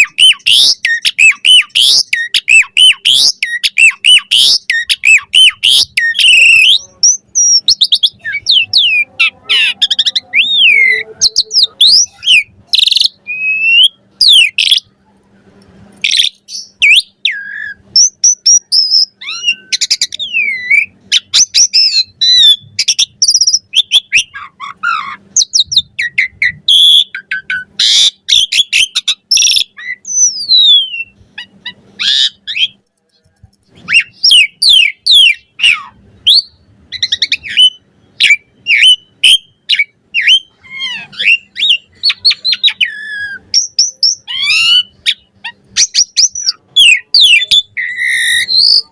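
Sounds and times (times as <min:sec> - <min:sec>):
starling singing varied song: 0:00.0 - 0:14.9.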